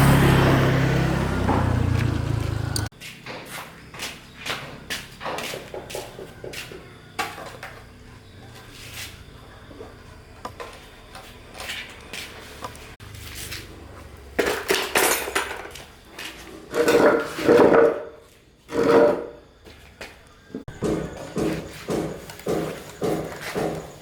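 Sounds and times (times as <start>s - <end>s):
objects clattering and scraping: 9.8s - 19.5s.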